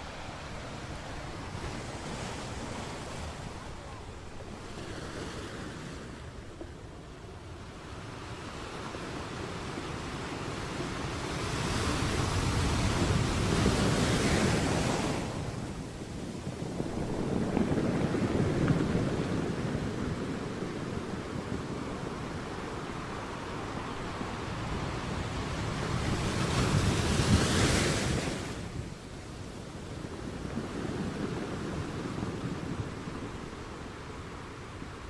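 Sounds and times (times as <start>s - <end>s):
sea waves breaking: 0.0s - 7.2s.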